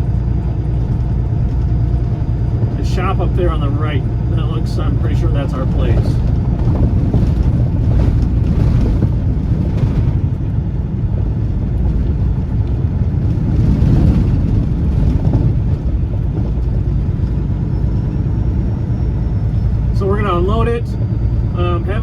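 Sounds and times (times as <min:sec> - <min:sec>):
road noise: 0:00.0 - 0:22.0
truck engine rumble: 0:00.0 - 0:22.0.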